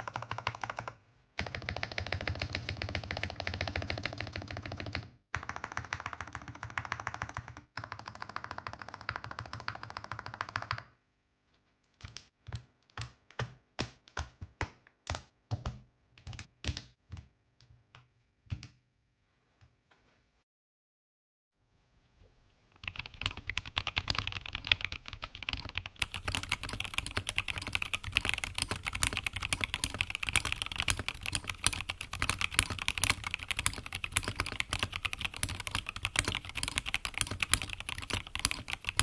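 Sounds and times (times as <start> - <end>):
typing on mechanical keyboard: 0.0 - 10.9, 22.8 - 39.0.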